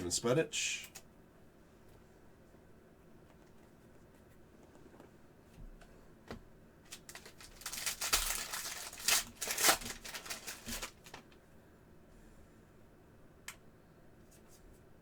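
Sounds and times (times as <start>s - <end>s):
foil wrapper tearing and crinkling: 6.9s - 11.2s.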